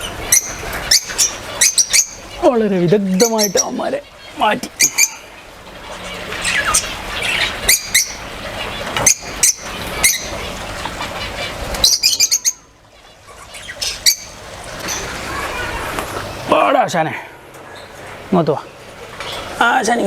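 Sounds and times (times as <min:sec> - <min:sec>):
birds chirping sharply: 0:00.0 - 0:20.0
wings flapping: 0:13.9 - 0:16.5.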